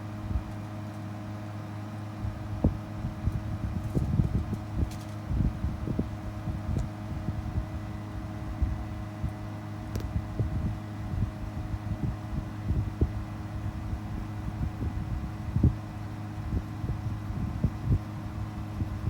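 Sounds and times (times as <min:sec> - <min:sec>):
air conditioner unit humming: 0:00.0 - 0:19.0.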